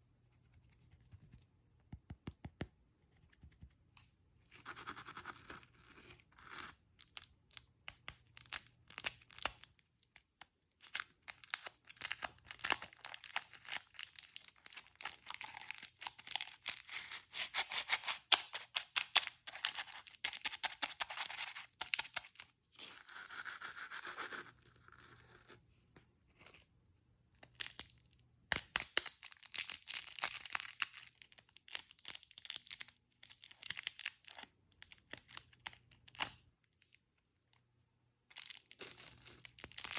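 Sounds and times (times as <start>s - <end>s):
plastic wrappers crinkling and tearing: 10.8s - 22.4s, 28.8s - 34.4s, 38.3s - 39.9s.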